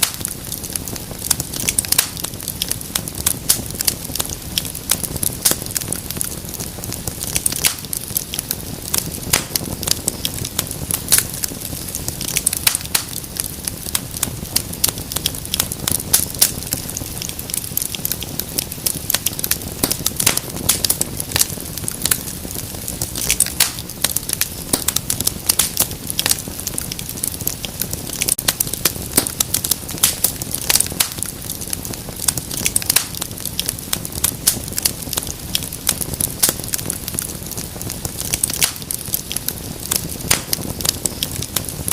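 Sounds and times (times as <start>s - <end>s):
wood fire crackling: 0.0s - 41.9s.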